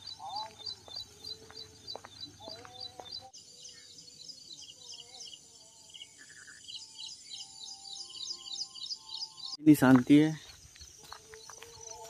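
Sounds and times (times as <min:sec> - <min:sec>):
high bird chirps: 0:06.1 - 0:09.6.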